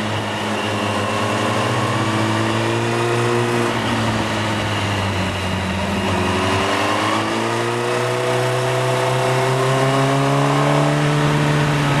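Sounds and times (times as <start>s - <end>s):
motorcycle engine accelerating: 0.0s - 12.0s
wind and road noise: 0.0s - 12.0s.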